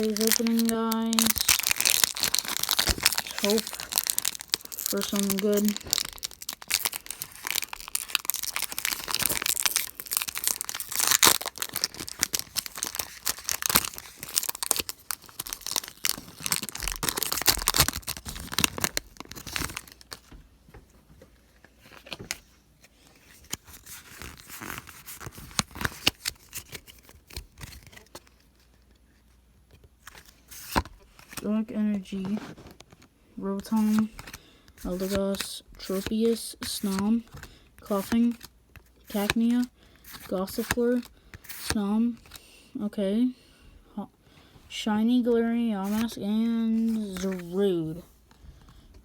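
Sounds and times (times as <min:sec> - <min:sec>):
foil wrapper tearing and crinkling: 0:00.0 - 0:20.2, 0:23.4 - 0:28.2.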